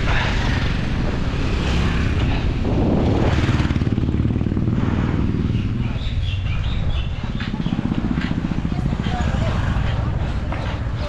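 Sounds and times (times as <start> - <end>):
bike rattling: 0.0 - 11.0
wind on microphone: 0.0 - 11.0.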